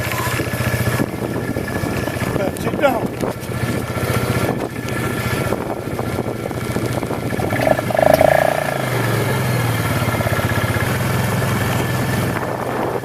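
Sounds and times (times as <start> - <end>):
short high-pitched tone: 0.0 - 0.6
vehicle engine running: 0.0 - 13.0.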